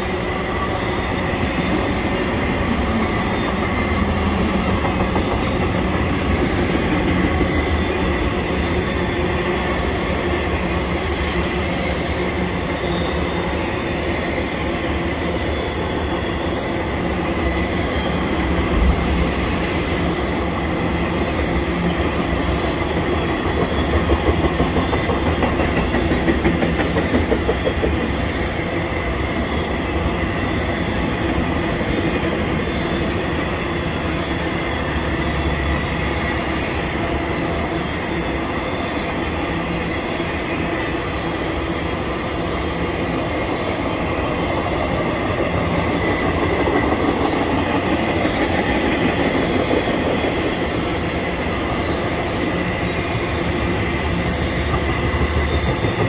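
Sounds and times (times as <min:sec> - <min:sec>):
train wheels clattering on rails: 0:01.6 - 0:08.8, 0:15.4 - 0:28.7, 0:43.4 - 0:56.0.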